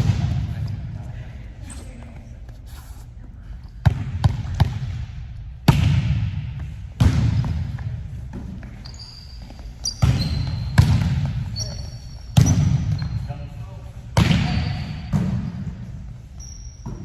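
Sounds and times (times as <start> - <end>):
volleyball hits echoing: 0.0 - 0.9, 3.8 - 8.7, 10.0 - 11.6, 12.3 - 13.0, 14.2 - 15.8
shoe squeaks: 8.6 - 13.8, 14.4 - 17.0.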